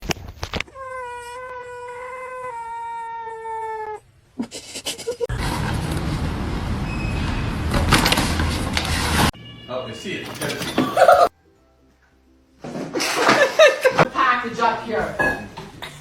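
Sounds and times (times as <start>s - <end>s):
cat meowing: 0.6s - 4.0s.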